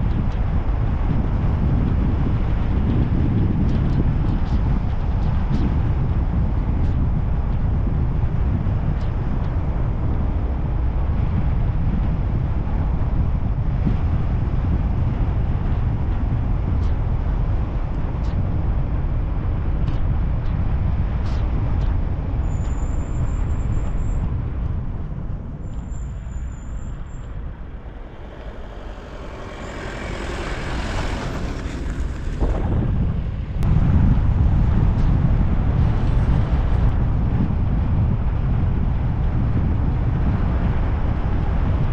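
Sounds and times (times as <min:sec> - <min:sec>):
car driving on road: 0:00.0 - 0:41.9
hissing swell: 0:25.7 - 0:33.6.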